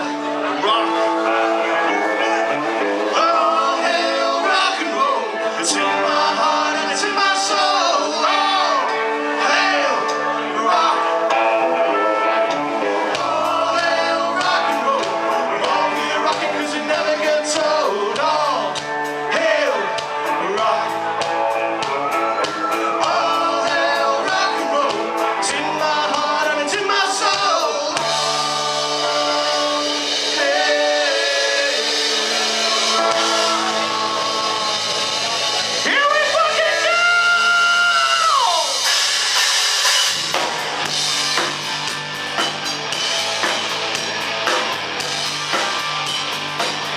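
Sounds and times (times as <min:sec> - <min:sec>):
bending lead guitar melody: 0:00.0 - 0:37.9, 0:38.7 - 0:46.9
live rock band playing: 0:00.0 - 0:46.9
steady drumbeat: 0:24.6 - 0:36.8, 0:38.2 - 0:46.9
cymbals crashing: 0:38.2 - 0:46.9.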